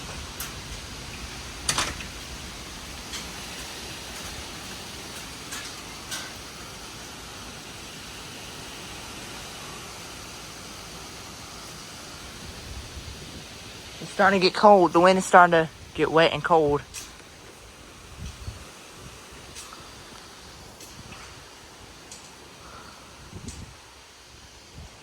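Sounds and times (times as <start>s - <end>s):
gusty wind through trees: 0.0s - 25.0s.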